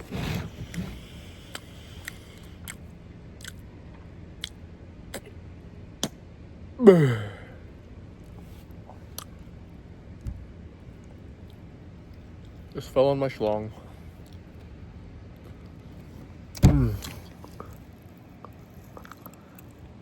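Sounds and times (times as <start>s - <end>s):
chewing with mouth smacks: 0.6s - 5.4s, 8.2s - 9.6s, 17.0s - 20.0s
short falling vocal sound: 16.6s - 17.3s.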